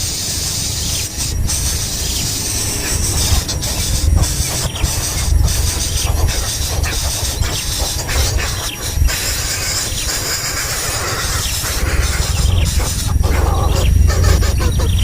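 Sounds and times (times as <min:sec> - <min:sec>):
steady high hiss: 0:00.0 - 0:15.0
low rumble: 0:11.2 - 0:15.0.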